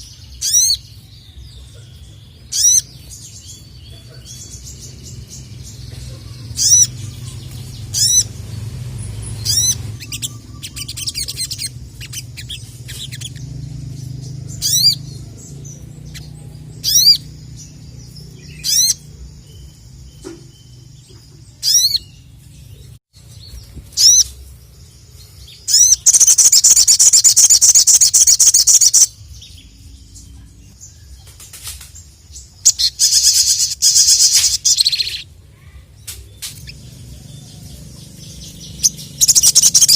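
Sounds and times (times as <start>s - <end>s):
bird rapid twittering: 0.0s - 0.9s, 2.4s - 30.2s, 31.3s - 35.3s, 36.3s - 39.9s.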